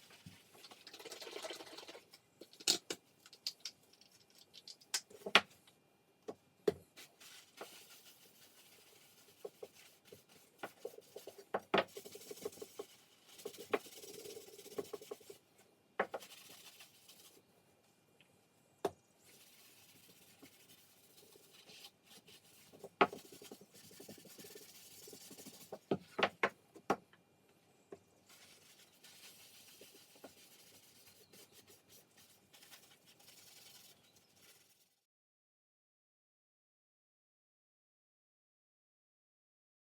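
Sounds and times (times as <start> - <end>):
rubbing and scraping: 28.3 - 34.9.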